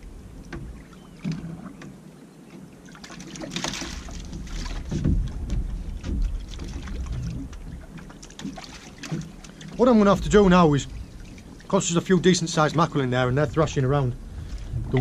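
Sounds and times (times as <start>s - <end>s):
water lapping against boat hull: 0.0s - 15.0s
knocks and clatter of fishing gear: 0.4s - 2.0s, 3.2s - 11.6s
splashy rush of water: 2.8s - 15.0s.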